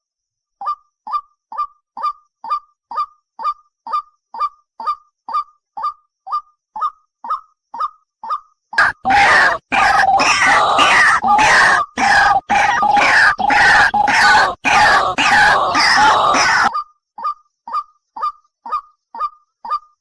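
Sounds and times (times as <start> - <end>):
harsh bird screeching: 8.8 - 16.8.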